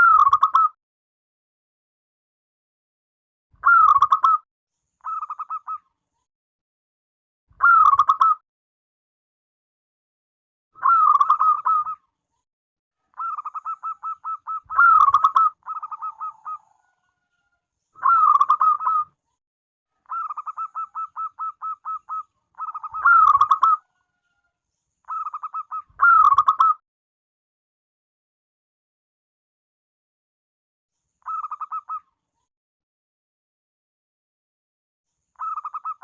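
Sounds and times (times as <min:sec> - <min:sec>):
dove cooing: 0:13.2 - 0:17.0, 0:18.0 - 0:19.0, 0:20.1 - 0:23.9.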